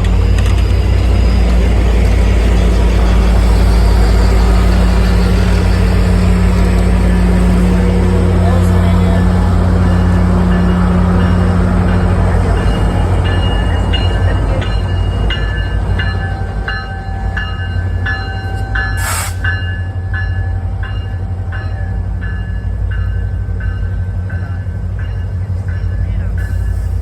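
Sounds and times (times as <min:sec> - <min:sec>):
diesel locomotive rumble: 0:00.0 - 0:27.0
bell ringing: 0:08.5 - 0:26.0.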